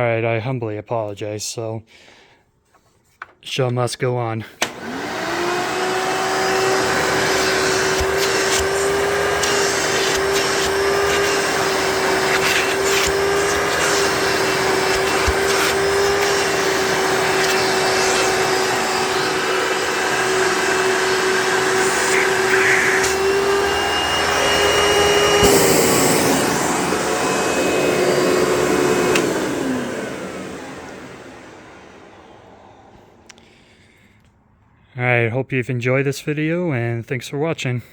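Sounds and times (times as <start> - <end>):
vacuum cleaner motor whine: 4.6 - 33.3
vacuum motor winding down: 4.6 - 33.3.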